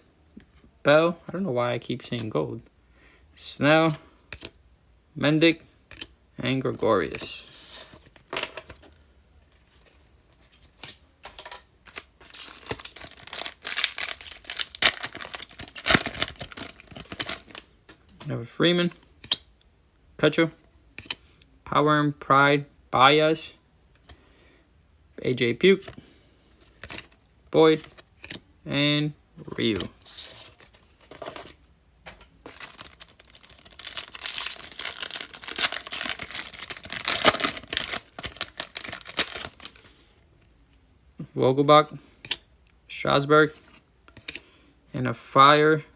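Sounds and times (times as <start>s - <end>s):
foil wrapper crinkling and tearing: 11.9s - 17.6s, 32.5s - 39.9s.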